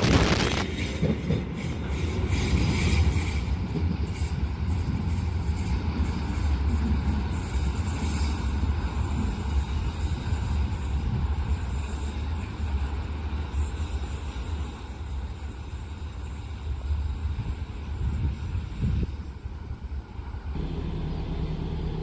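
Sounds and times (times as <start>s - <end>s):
passing vehicle rumble: 20.6s - 22.0s.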